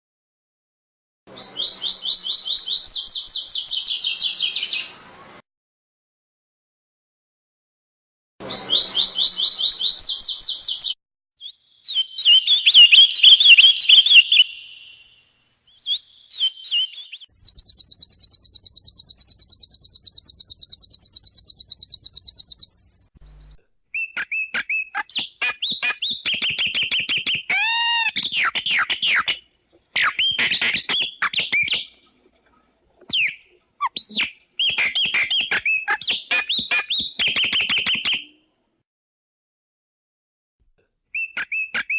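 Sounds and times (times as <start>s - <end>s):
songbirds chirping: 1.3s - 5.4s, 8.5s - 27.5s
bird trill: 1.4s - 4.9s, 8.4s - 32.1s, 33.1s - 38.4s, 41.2s - 41.9s
rapid whistled bird notes: 8.5s - 15.0s, 15.7s - 32.0s, 33.1s - 38.3s, 41.2s - 41.9s.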